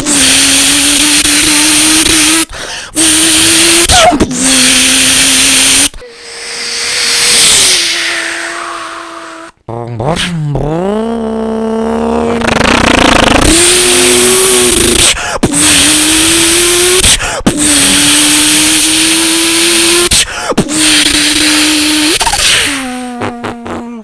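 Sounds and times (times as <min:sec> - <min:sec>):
man imitating engine accelerating: 0:00.0 - 0:24.0
loud hiss: 0:04.6 - 0:09.5.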